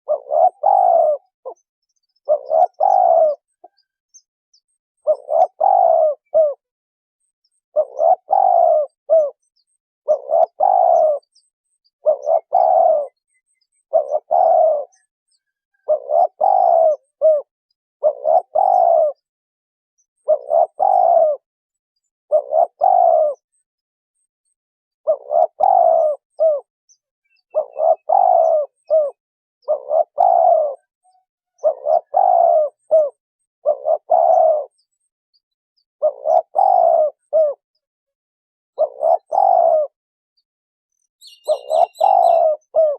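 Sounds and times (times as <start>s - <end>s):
dove cooing: 0.0s - 4.2s, 5.0s - 6.7s, 7.7s - 19.3s, 20.2s - 21.5s, 22.3s - 23.6s, 25.0s - 26.7s, 27.4s - 35.0s, 36.0s - 37.6s, 38.8s - 40.0s, 41.2s - 42.9s.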